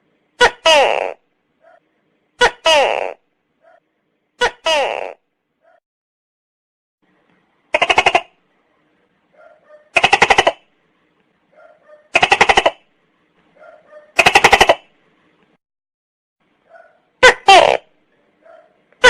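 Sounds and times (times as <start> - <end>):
gecko calling: 7.7 - 8.4, 9.4 - 10.7.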